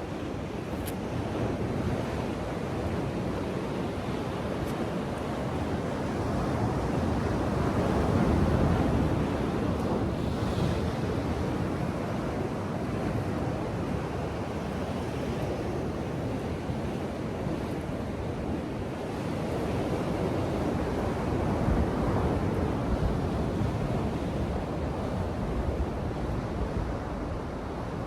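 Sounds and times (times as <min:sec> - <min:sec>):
ocean surf washing on beach: 0:00.0 - 0:28.0
wind buffeting microphone: 0:00.1 - 0:28.0.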